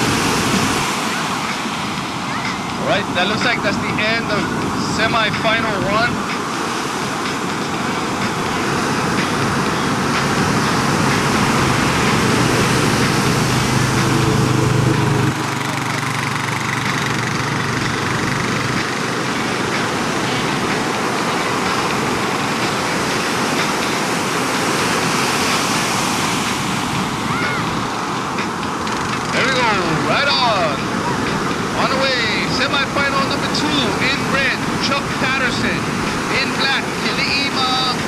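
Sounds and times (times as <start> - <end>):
ocean surf rushing: 0.0 - 38.0
low hum: 7.1 - 24.6.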